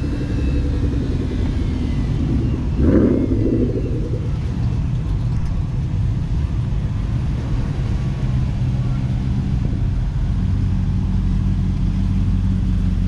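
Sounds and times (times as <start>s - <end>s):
exhaust burst: 0.0s - 4.6s
car engines idling: 0.0s - 13.0s.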